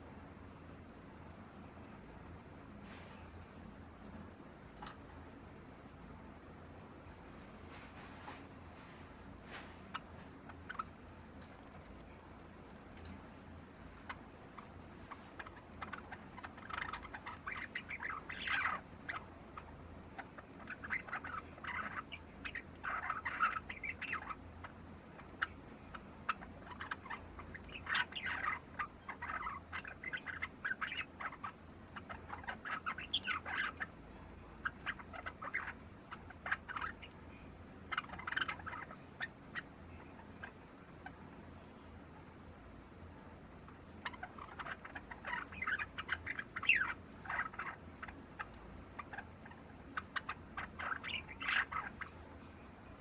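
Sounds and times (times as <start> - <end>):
sparrow clicks and chirps: 9.9 - 13.2, 14.0 - 41.2, 43.7 - 52.2.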